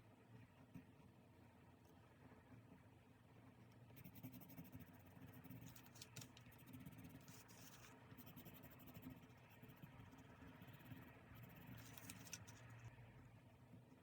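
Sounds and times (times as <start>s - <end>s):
faint scratching on paper: 3.7s - 12.9s.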